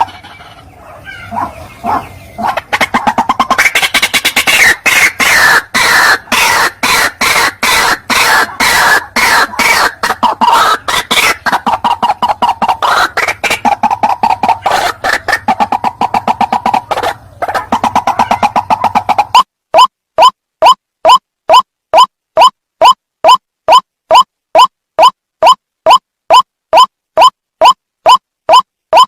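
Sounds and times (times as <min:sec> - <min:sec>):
waterhen harsh calls: 0:00.0 - 0:26.4.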